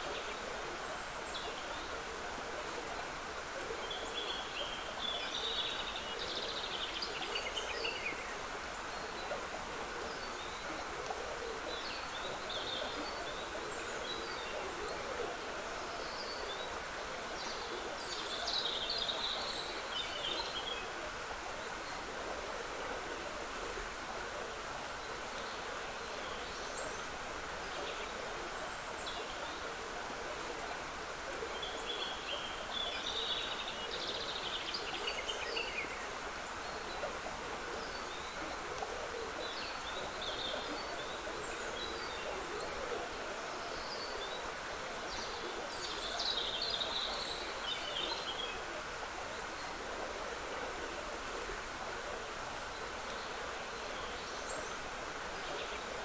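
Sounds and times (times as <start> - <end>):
water trickling in stream: 0.0 - 56.0.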